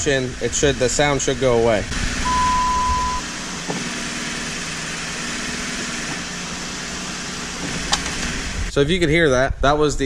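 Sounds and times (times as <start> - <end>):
car engine idling: 0.0 - 8.7
steady high beep: 2.3 - 3.2.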